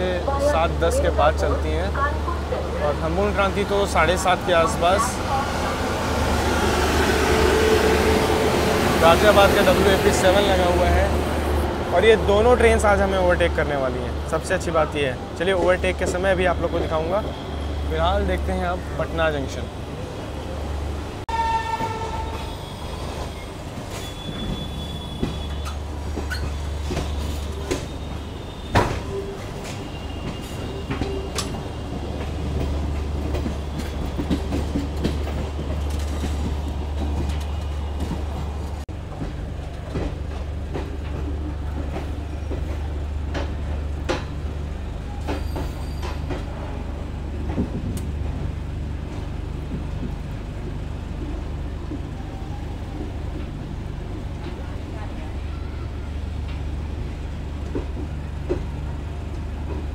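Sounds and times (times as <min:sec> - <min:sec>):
train rumbling: 0:00.0 - 0:59.9
train wheel squeal: 0:21.4 - 0:31.9, 0:45.0 - 0:46.5
wheels clacking over rail joints: 0:23.5 - 0:50.2.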